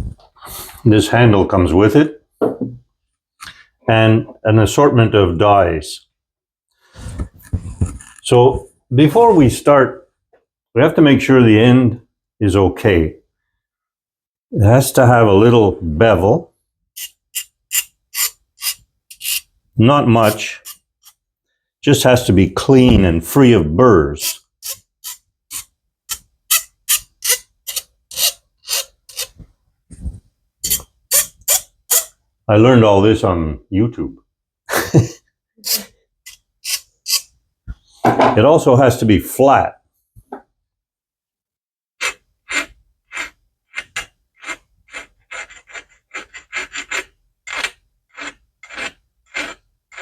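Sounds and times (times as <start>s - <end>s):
filing metal pipe by hand: 17.0s - 19.5s, 20.2s - 21.2s, 24.2s - 32.2s, 35.6s - 37.4s, 42.0s - 50.0s.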